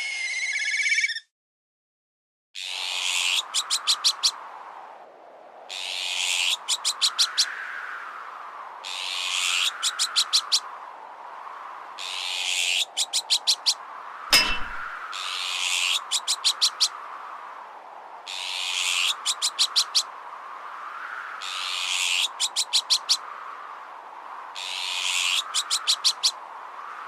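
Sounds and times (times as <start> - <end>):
strong wind: 2.7 - 27.0
metallic clang: 14.3 - 15.0.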